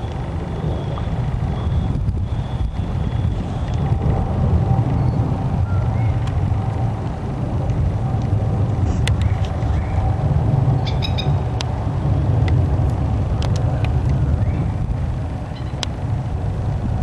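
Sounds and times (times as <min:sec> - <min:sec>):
low background rumble: 0:00.0 - 0:17.0
faint clicks: 0:12.4 - 0:14.2.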